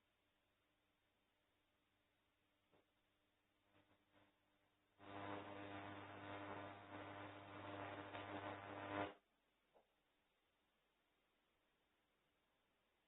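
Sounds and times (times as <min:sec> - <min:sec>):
electric arc crackling: 0:05.0 - 0:09.2
loud mains buzz: 0:05.0 - 0:09.2.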